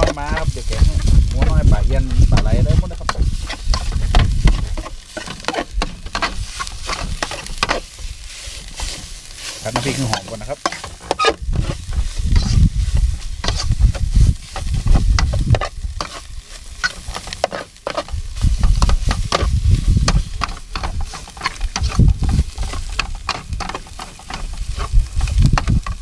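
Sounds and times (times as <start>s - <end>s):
low rumble: 0.0s - 4.9s, 11.4s - 16.0s
paste sizzling in oil: 0.0s - 26.0s
spatula scraping pan: 0.0s - 26.0s.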